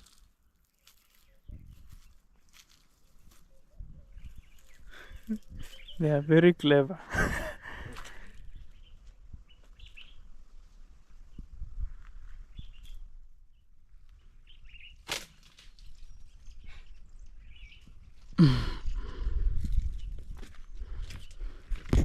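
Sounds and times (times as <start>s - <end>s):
rustling in bush: 0.0s - 6.2s, 8.0s - 18.4s
small birds chirping faintly: 0.1s - 6.8s, 8.1s - 21.7s
sharp snap: 15.0s - 15.4s.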